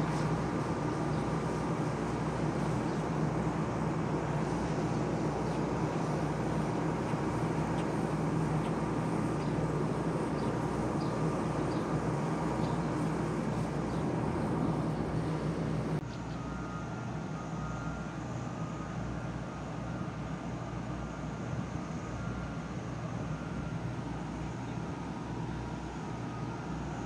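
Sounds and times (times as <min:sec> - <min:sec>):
large engine running: 0:00.0 - 0:16.0
faint high whine: 0:00.0 - 0:27.0.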